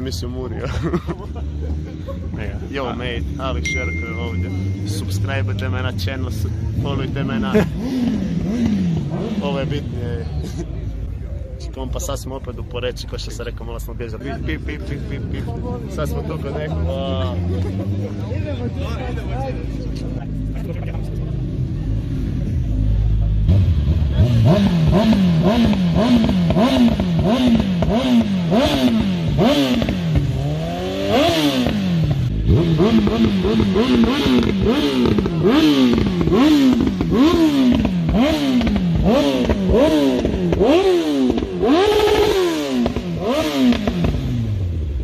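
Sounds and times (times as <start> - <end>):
engine revving in throttle blips: 4.3 - 10.0, 19.7 - 45.0.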